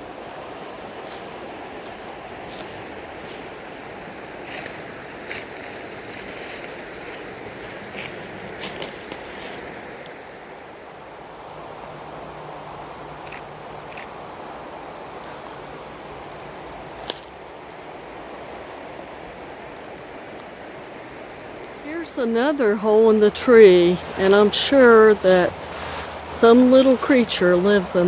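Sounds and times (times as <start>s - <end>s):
river water over rapids: 12.8s - 28.0s.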